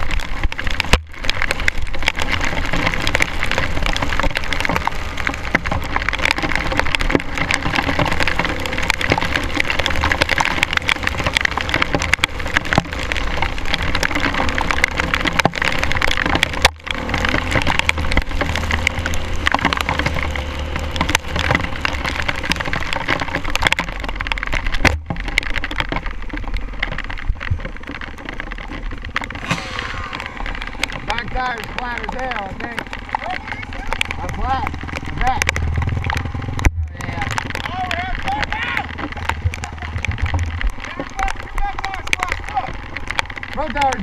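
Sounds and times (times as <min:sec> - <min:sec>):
rain hitting camera microphone: 0:00.0 - 0:44.0
low rumble: 0:28.6 - 0:41.6.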